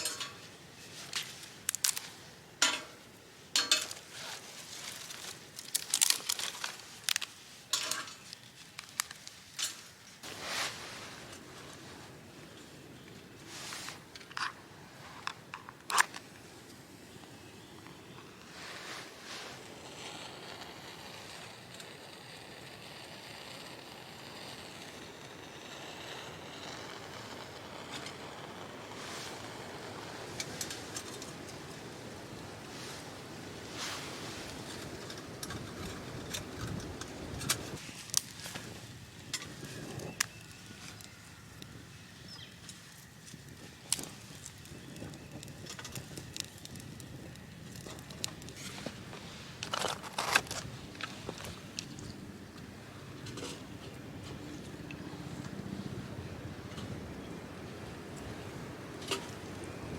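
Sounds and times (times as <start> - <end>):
crinkling rustles: 0.0 - 3.0, 3.6 - 12.2, 32.7 - 41.8, 42.5 - 52.3
metal cookware clinking: 3.6 - 4.0
wind rushing through trees: 16.2 - 49.7, 50.4 - 59.9.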